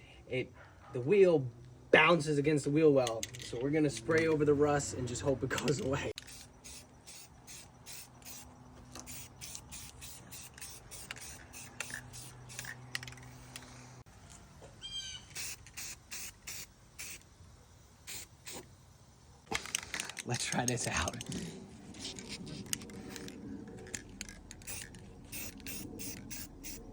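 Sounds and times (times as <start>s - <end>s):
spray paint can hissing: 6.2s - 14.1s, 15.1s - 19.8s, 24.6s - 26.9s.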